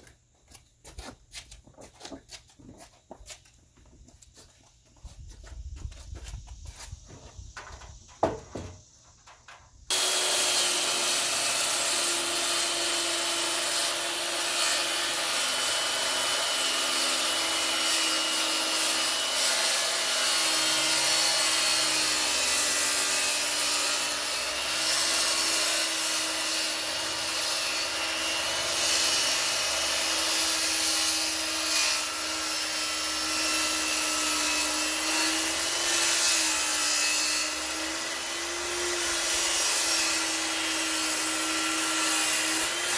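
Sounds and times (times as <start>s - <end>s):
wood being cut: 9.9s - 42.9s.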